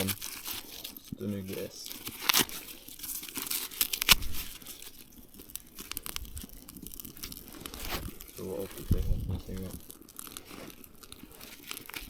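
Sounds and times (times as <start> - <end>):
twigs crackling and snapping: 0.0 - 12.0.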